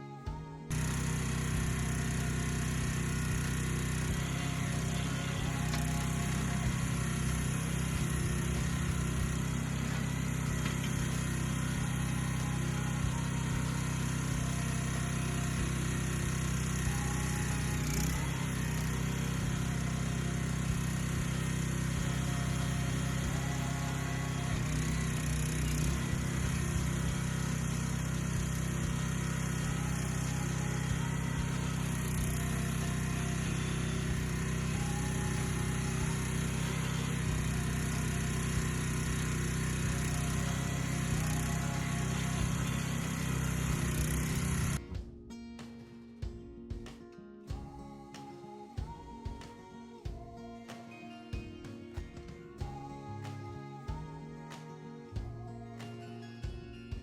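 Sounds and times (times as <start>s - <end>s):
small gas engine running: 0.0s - 44.8s.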